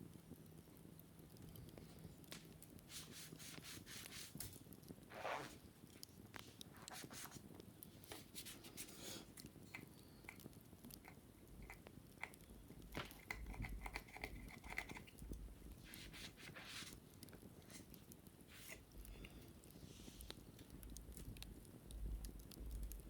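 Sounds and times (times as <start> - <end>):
sharp crackles: 0.1 - 23.0
wicker baskets being scratched: 2.9 - 5.6, 15.9 - 17.0.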